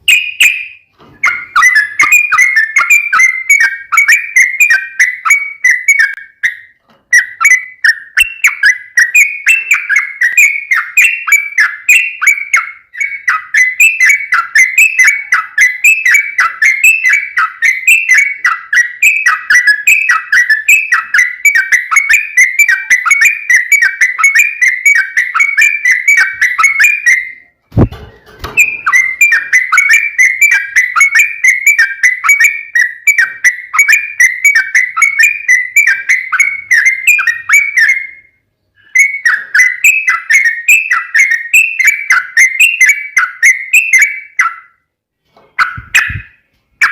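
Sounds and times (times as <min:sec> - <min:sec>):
bird singing chattering song: 0:00.0 - 0:44.8, 0:45.5 - 0:46.9
dull thump: 0:27.7 - 0:28.9.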